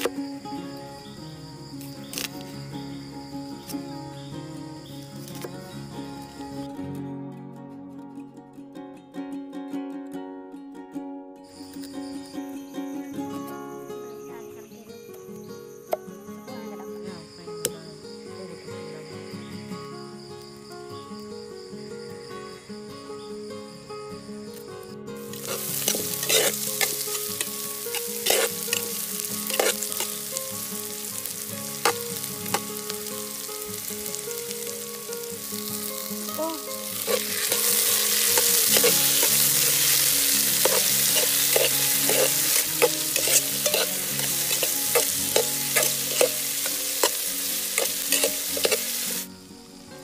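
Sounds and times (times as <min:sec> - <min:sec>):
onion frying in oil: 0:25.2 - 0:49.8
spatula scraping metal pot: 0:25.3 - 0:30.2, 0:37.0 - 0:49.2.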